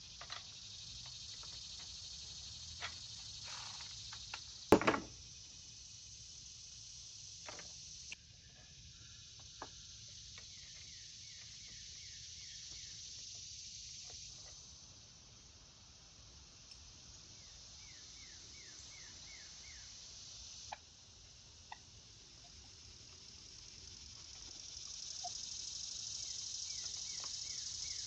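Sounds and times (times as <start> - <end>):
insect hiss: 0.0 - 28.0
sharp knock: 4.7 - 5.1.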